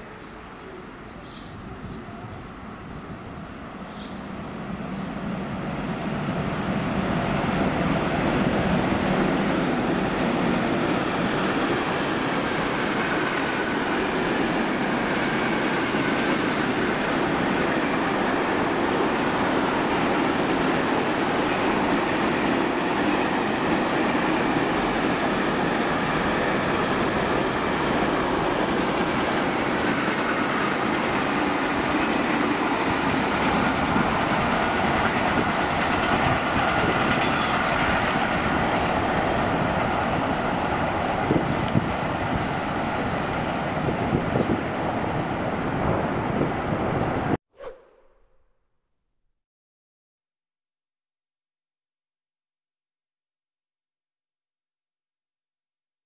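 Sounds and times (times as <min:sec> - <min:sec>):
freight train wheels rolling: 0:02.7 - 0:47.2.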